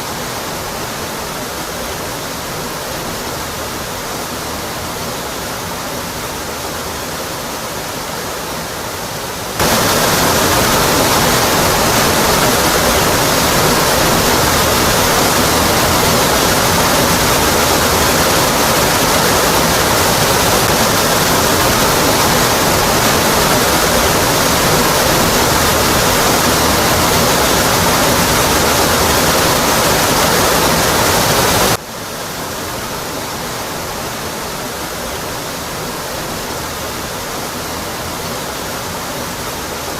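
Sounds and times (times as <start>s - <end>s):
waterfall rushing onto rock: 8.6s - 39.9s.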